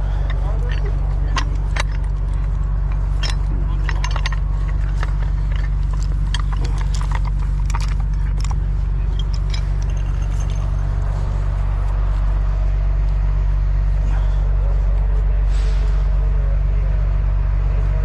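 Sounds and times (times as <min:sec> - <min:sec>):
metal chain clinking: 0:00.0 - 0:12.0
diesel engine idling: 0:00.0 - 0:18.0.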